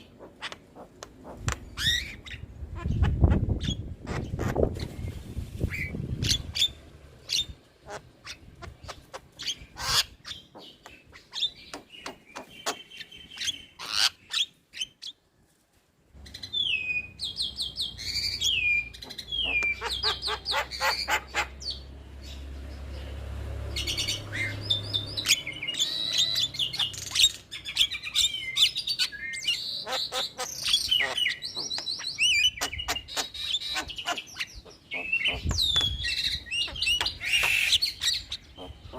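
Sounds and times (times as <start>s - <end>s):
bird song with clicks and whistles: 10.2s - 15.2s, 16.2s - 21.2s, 24.4s - 38.9s.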